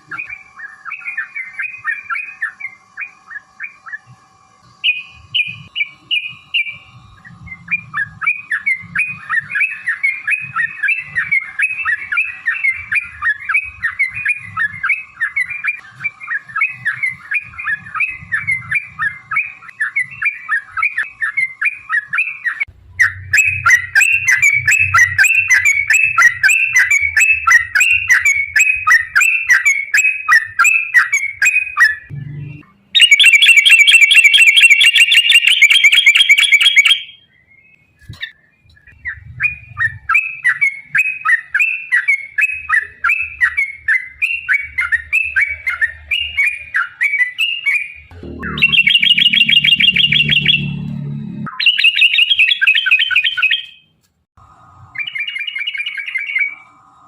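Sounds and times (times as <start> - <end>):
bird singing chattering runs: 48.4 - 50.9.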